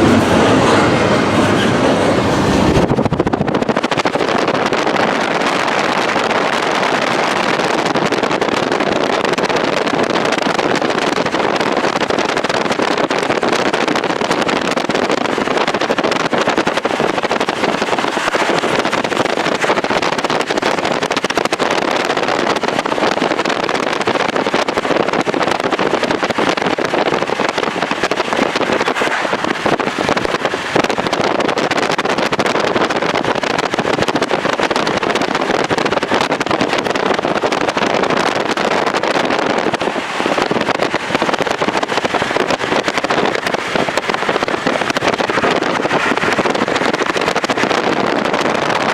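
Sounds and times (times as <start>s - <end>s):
vehicle rushing noise: 0.0s - 8.4s, 12.8s - 23.3s, 24.0s - 48.9s
wind on microphone: 0.0s - 48.9s.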